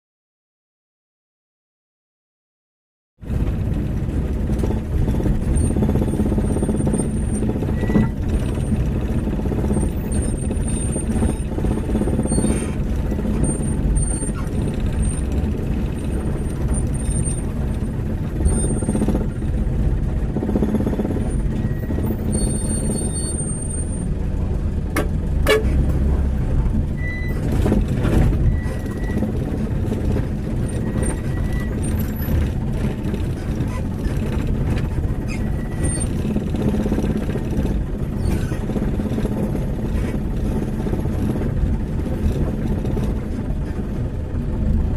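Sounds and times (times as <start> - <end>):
truck engine under load: 3.2 - 44.9
high-pitched squeaks: 6.4 - 8.7, 21.0 - 24.1, 35.2 - 36.2.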